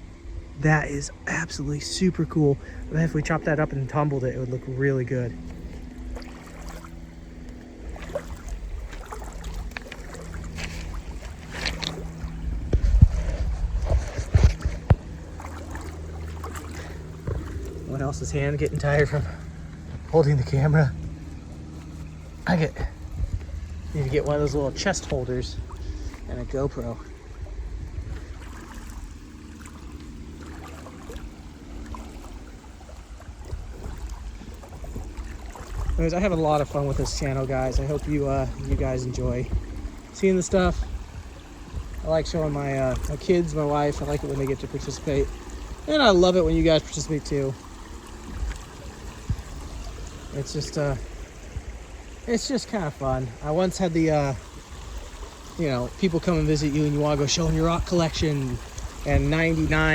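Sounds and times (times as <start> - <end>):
footsteps in gravelly creek: 0.6 - 59.9
wind on microphone: 5.5 - 59.9.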